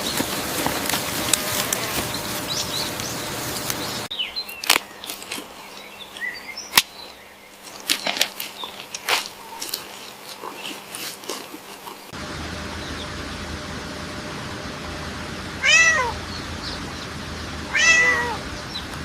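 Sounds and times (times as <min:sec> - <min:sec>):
drawn-out animal calls: 0:00.0 - 0:04.1, 0:15.1 - 0:19.0.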